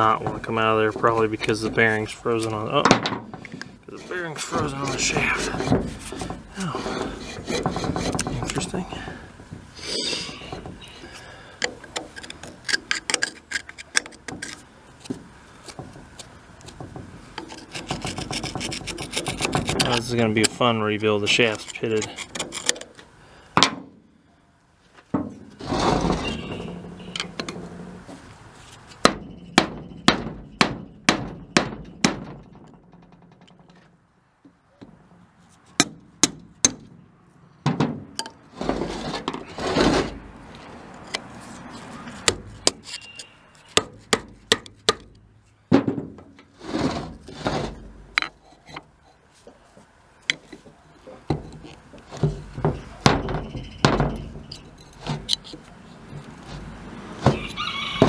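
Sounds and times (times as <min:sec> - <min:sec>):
metal parts scraping and handling: 0:00.0 - 0:23.2, 0:25.3 - 0:29.6, 0:38.2 - 0:44.9, 0:46.3 - 0:58.0.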